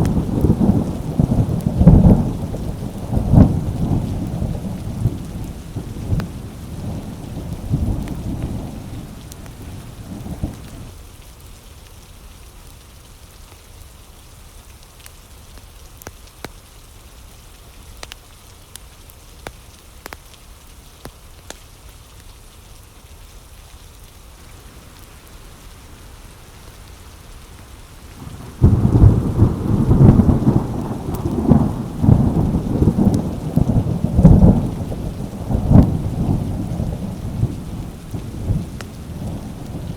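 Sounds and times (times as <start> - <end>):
thunder rumbling: 0.0 - 10.9, 24.4 - 39.9
thunderclap: 0.0 - 10.9, 24.5 - 39.9
steady rain: 0.0 - 39.9.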